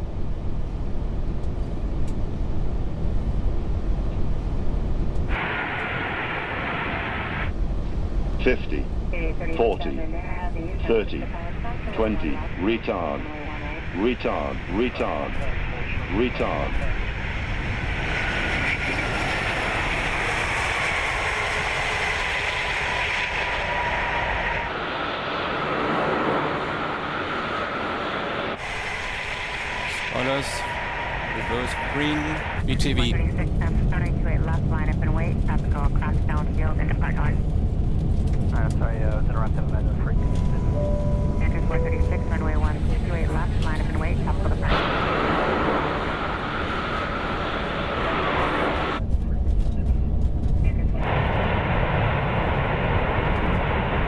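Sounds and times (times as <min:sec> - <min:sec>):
low rumble of airflow and engines: 0:00.0 - 0:54.0
radio channel hiss: 0:05.3 - 0:07.5, 0:08.4 - 0:37.4, 0:41.4 - 0:49.0, 0:50.6 - 0:54.0.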